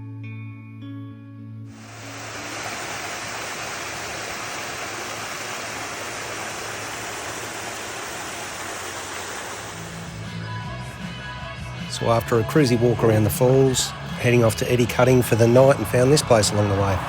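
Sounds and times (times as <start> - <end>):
waterfall rushing: 1.7 - 10.3.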